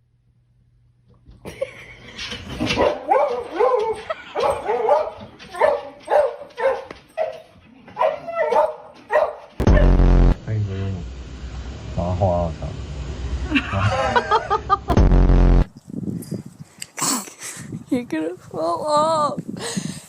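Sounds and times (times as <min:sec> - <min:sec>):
dog yipping and whining: 0:02.8 - 0:09.4
loud sound: 0:09.6 - 0:15.7.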